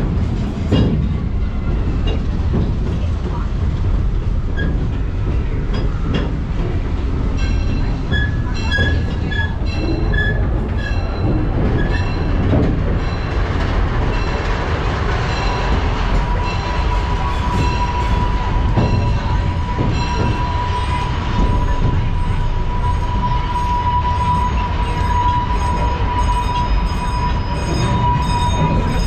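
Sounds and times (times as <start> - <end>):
train car rolling on track: 0.0 - 29.0
high squeal from wheels: 8.0 - 12.3, 16.2 - 29.0.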